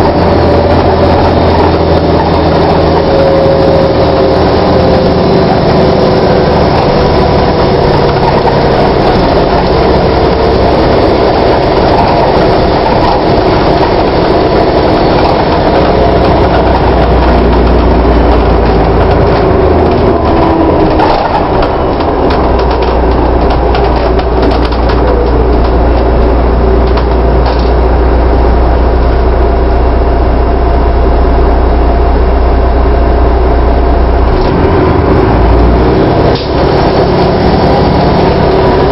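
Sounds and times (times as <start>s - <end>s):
bus engine whine falling in pitch: 0.0s - 38.9s
deep steady bus drone: 0.0s - 38.9s
rattles: 0.1s - 28.0s.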